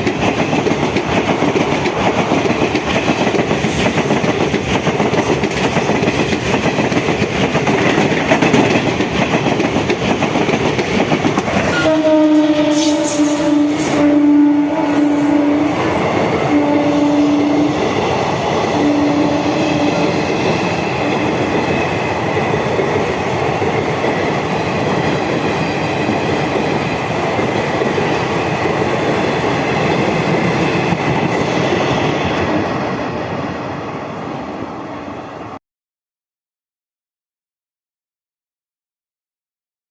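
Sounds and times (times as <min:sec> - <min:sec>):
train coaches rushing and rattling: 0:00.0 - 0:34.2
train horn blasts: 0:11.7 - 0:17.8, 0:18.7 - 0:20.2.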